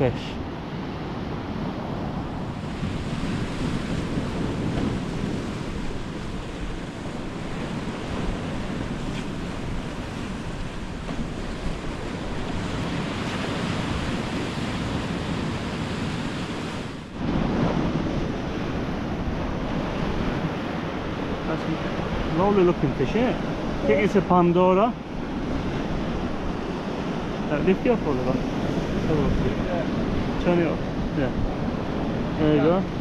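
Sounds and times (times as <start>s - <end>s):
wind rushing: 0.0s - 23.9s
ocean surf: 0.0s - 33.0s
wind buffeting microphone: 0.0s - 33.0s.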